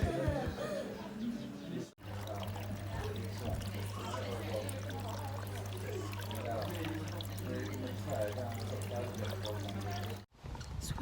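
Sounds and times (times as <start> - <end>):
faint voices: 0.0 - 10.3
low steady hum: 0.0 - 10.3
water trickling and pouring: 2.0 - 10.3.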